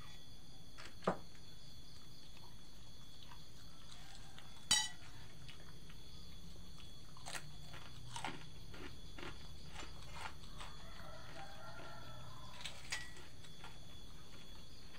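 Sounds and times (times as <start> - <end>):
steady background noise: 0.0 - 14.9
utensil clinking on plate: 4.7 - 5.0.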